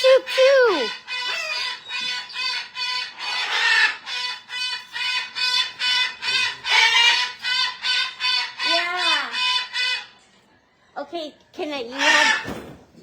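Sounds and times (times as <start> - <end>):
parrot squawking: 0.0 - 10.2, 11.8 - 12.6.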